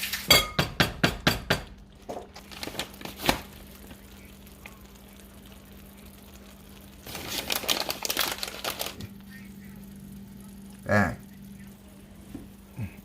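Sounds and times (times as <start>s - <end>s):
plastic bag crinkling: 2.0s - 4.6s, 6.1s - 9.3s.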